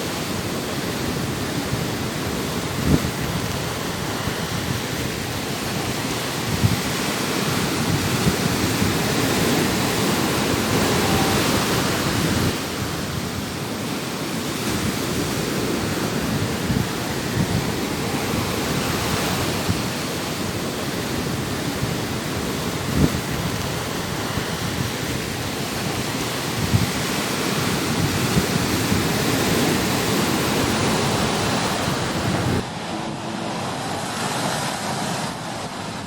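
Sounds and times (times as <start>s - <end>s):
heavy surf: 0.0s - 36.0s
wind: 0.0s - 36.0s.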